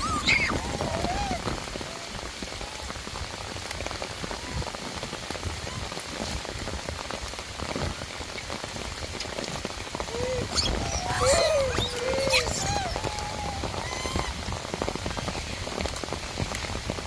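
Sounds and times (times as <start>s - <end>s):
rain pattering: 0.0s - 17.0s
rising and falling call: 10.1s - 14.3s.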